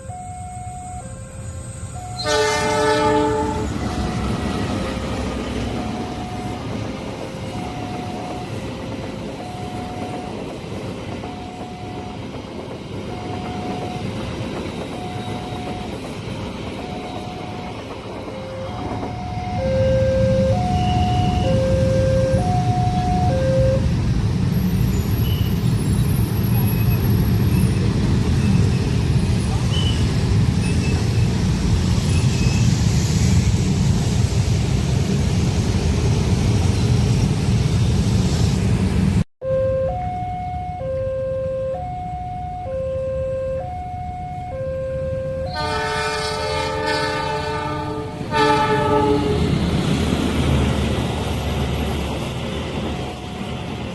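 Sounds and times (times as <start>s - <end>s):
level crossing electronic alarm tone: 0.0s - 2.9s, 3.6s - 6.8s, 7.4s - 10.6s, 11.2s - 12.3s, 13.1s - 23.9s, 39.4s - 45.8s
lower alarm tone: 0.0s - 6.8s, 7.4s - 10.6s, 11.2s - 12.3s, 13.1s - 24.0s, 39.4s - 46.2s
train rumbling past: 0.0s - 39.2s, 43.8s - 53.9s
two-note alternating tone: 16.9s - 23.9s, 39.4s - 45.6s.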